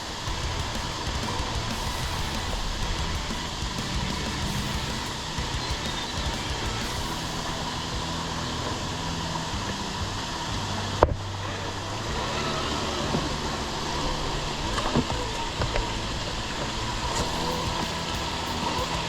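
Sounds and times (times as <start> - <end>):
rc car motor and gears: 10.8 - 19.0.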